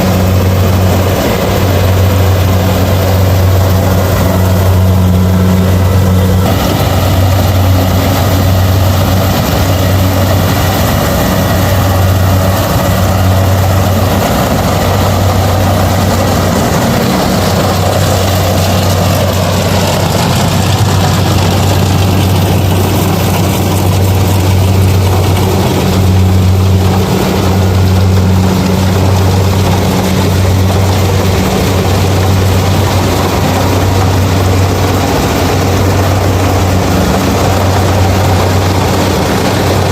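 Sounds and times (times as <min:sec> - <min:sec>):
combine harvester diesel engine: 0:00.0 - 0:39.9.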